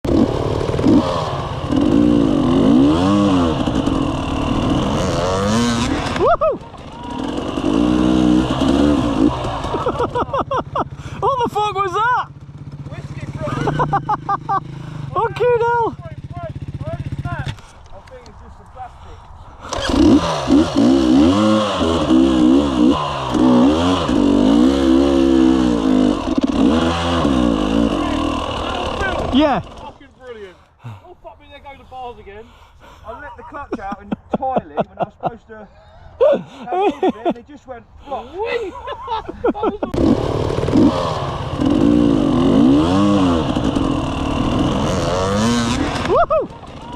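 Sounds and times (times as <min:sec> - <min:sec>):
dirt bike engine revving: 0:00.1 - 0:18.0, 0:19.6 - 0:30.5, 0:39.7 - 0:46.9.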